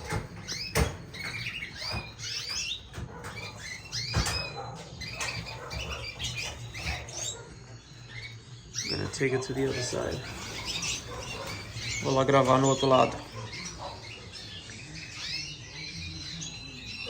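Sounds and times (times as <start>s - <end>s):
canaries chirping: 0.0s - 17.0s.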